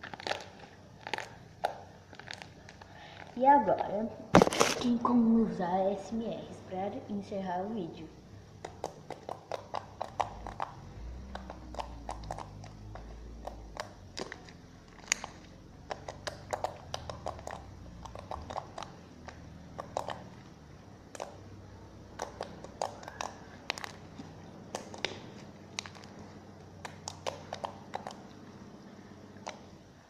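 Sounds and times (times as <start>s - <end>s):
slime clicking and popping: 8.6s - 20.5s, 21.1s - 28.4s.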